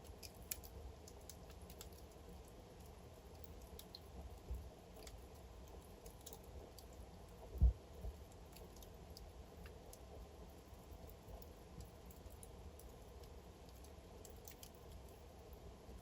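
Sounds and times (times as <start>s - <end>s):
logs crackling and popping: 0.0s - 15.2s
faint low rumble: 6.6s - 16.0s.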